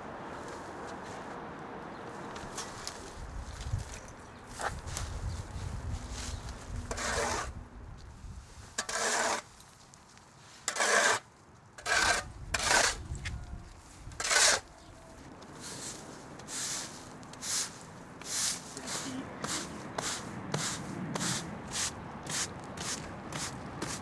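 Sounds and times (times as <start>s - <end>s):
short rasping scrapes: 6.9s - 7.5s, 8.8s - 9.5s, 10.7s - 11.2s, 11.8s - 13.0s, 14.2s - 14.7s.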